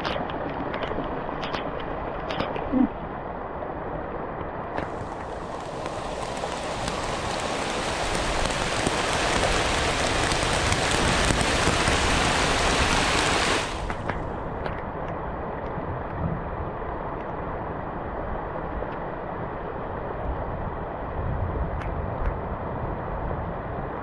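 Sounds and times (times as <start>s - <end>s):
heavy rain falling: 4.7s - 14.6s.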